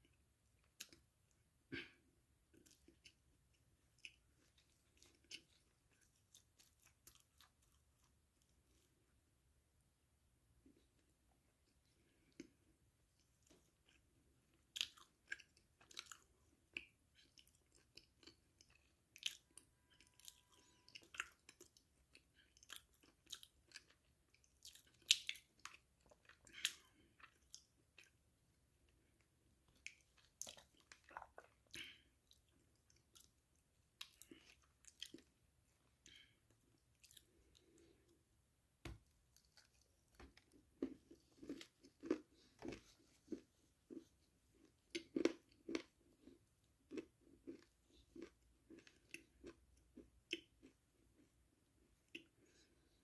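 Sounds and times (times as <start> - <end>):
person chewing crunchy food: 2.5 - 8.9, 13.4 - 28.2, 29.7 - 38.1, 39.3 - 51.3.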